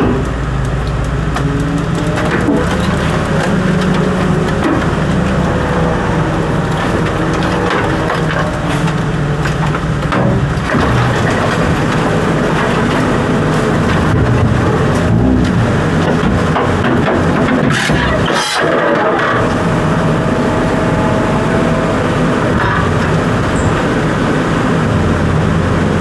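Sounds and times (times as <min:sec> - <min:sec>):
crackling crunching clatter: 0:00.0 - 0:19.6
engine running: 0:00.0 - 0:26.0.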